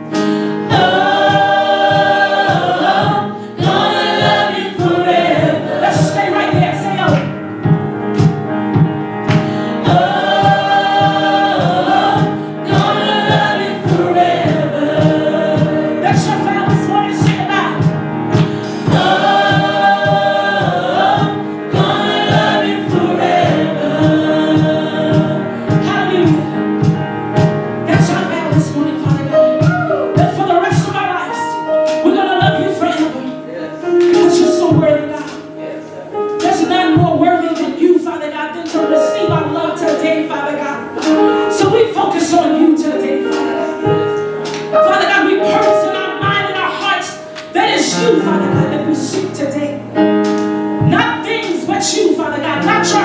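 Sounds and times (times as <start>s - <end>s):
band with drum beat: 0.0s - 31.0s
choir singing harmonies: 0.0s - 37.9s, 38.5s - 53.0s.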